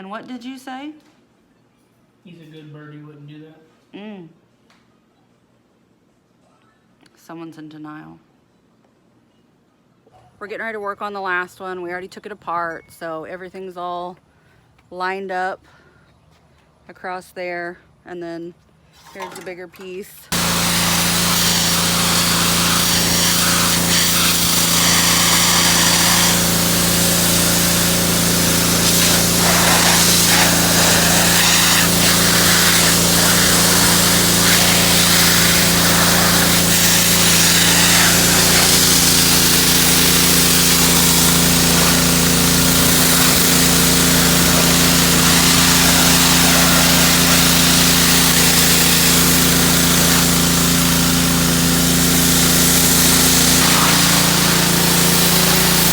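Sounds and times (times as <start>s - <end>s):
pressure washer motor hum: 20.3s - 55.9s
water jet hissing: 20.3s - 55.9s.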